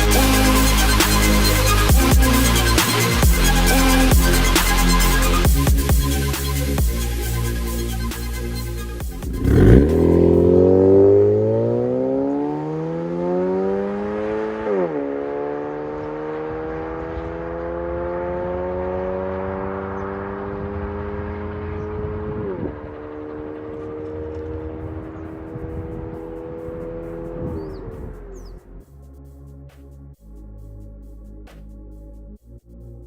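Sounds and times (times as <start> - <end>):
car engine accelerating: 9.0 - 28.6.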